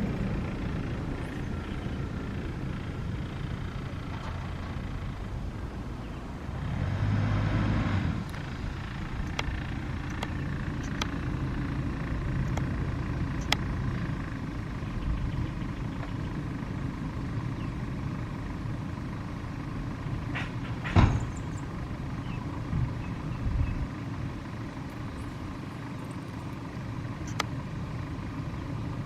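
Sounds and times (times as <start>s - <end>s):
jet engines rumbling: 0.0s - 29.0s
light clicks: 13.4s - 13.6s, 27.2s - 27.5s.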